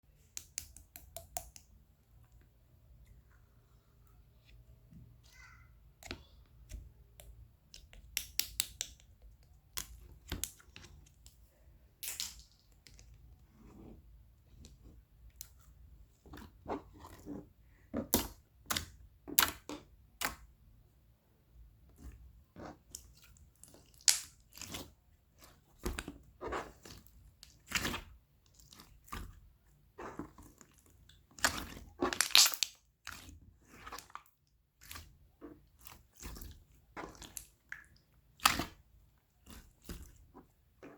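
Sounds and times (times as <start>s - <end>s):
slime sticky clicks and pops: 7.9s - 9.0s, 32.1s - 32.7s.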